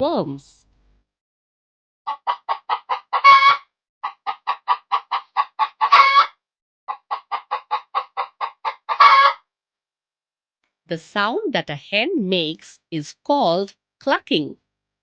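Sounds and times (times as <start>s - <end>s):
hen clucking: 2.1s - 9.4s
hen squawking: 5.6s - 6.3s.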